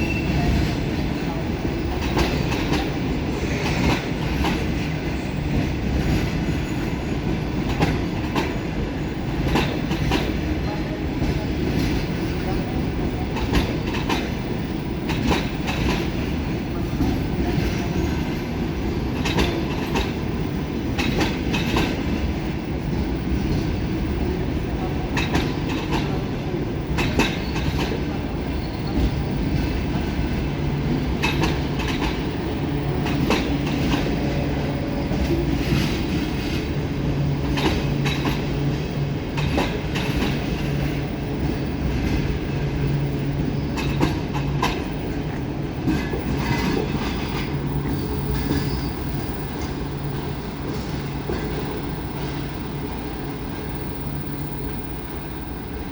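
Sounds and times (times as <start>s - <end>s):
train wheels clicking over rail joints: 28.9s - 48.8s.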